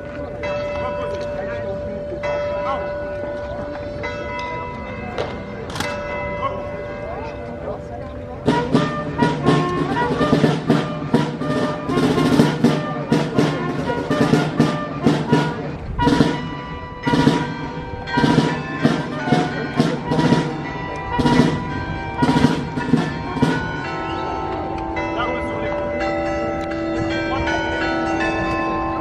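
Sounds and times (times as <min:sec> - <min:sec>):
military marching band: 0:00.0 - 0:29.0
held brass notes: 0:05.7 - 0:29.0
drums striking: 0:08.4 - 0:23.9.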